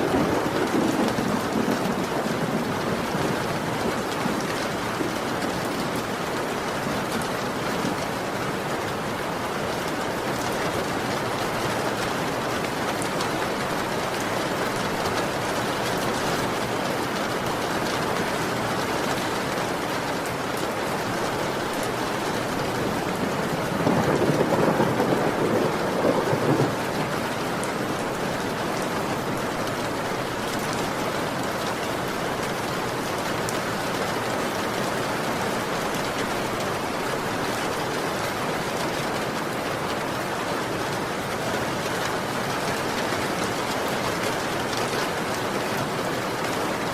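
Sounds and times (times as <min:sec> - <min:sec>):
thunder rolling: 0:00.0 - 0:05.2, 0:22.2 - 0:27.9
heavy rain: 0:00.0 - 0:46.9.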